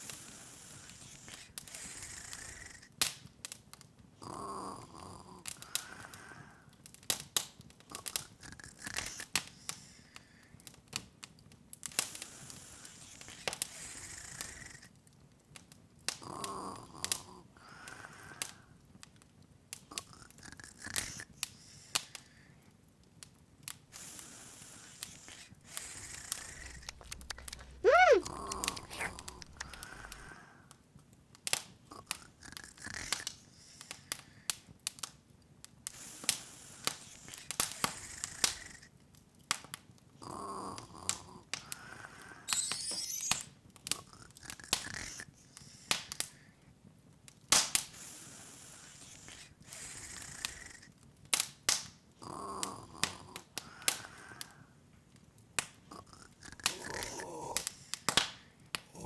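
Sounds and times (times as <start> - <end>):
high sparkling twinkle: 42.5 - 43.5.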